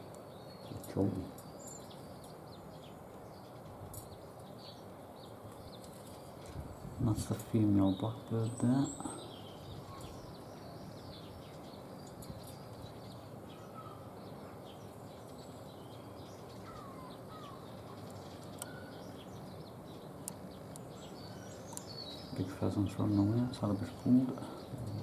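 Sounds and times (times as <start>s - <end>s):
bird chirps and calls: 0.0s - 25.0s
steady background hiss: 0.0s - 25.0s
faint clicks: 21.7s - 21.9s.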